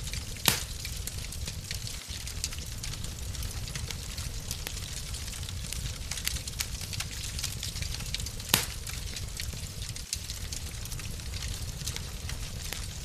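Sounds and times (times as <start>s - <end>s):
wood fire crackling: 0.0s - 13.0s
loud fire pop: 0.4s - 1.2s, 8.5s - 9.0s.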